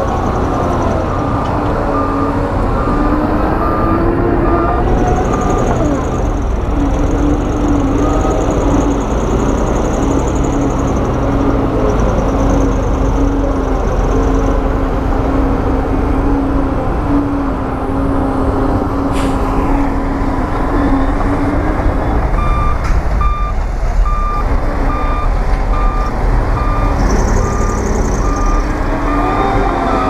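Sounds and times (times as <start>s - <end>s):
heavy diesel machinery running: 0.0s - 30.0s
reversing alarm beeping: 0.1s - 6.4s, 22.4s - 30.0s.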